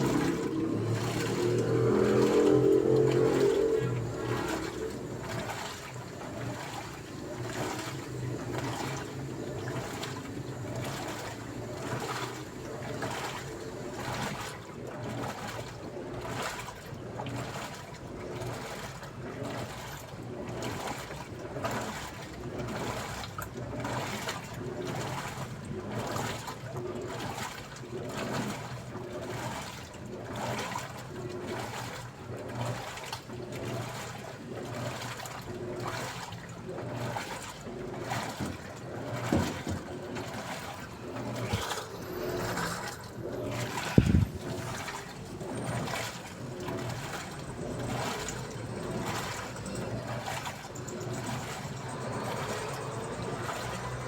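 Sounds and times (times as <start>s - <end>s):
motor hum: 0.0s - 16.5s, 35.6s - 54.0s
washing machine water sloshing: 0.0s - 54.0s.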